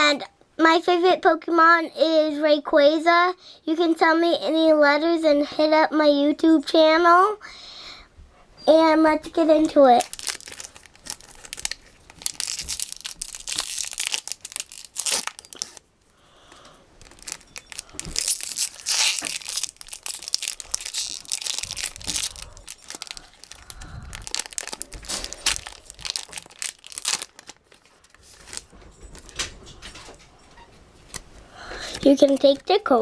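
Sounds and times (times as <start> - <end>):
foil wrapper tearing and crinkling: 9.6 - 15.8, 17.0 - 28.7, 31.8 - 32.8.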